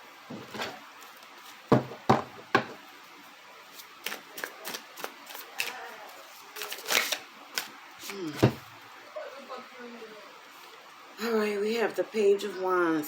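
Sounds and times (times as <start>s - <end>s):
cards clicking and rustling: 4.0s - 5.8s, 6.6s - 8.2s.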